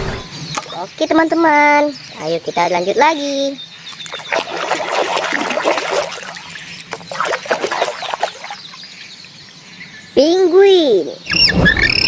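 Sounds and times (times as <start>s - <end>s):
water splashing and trickling: 3.8s - 9.4s.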